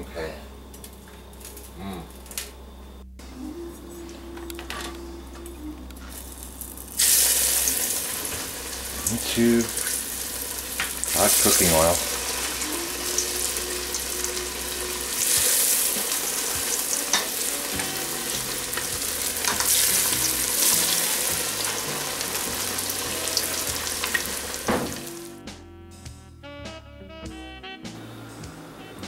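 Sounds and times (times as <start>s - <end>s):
music: 3.0s - 29.0s
fish deep-frying in hot oil: 6.4s - 25.3s.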